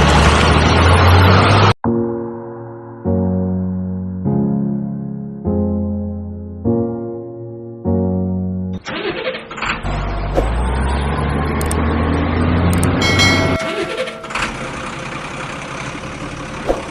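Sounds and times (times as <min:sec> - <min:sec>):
heavy truck engine running: 0:00.0 - 0:01.8, 0:08.9 - 0:16.9.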